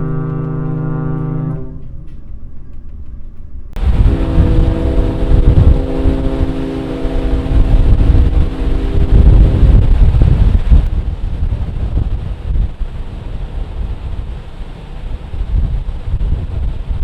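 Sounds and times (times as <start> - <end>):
higher-pitched ship horn: 0.0 - 2.2, 3.8 - 10.9
ship horn blast: 0.0 - 2.2, 3.8 - 11.0
wind buffeting microphone: 0.0 - 17.0.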